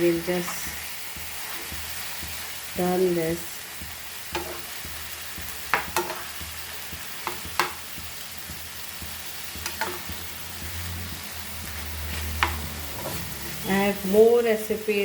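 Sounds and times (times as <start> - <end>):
chicken sizzling in hot oil: 0.0 - 15.0
spoon scraping a pan: 0.3 - 2.6, 4.2 - 7.8, 8.5 - 13.6.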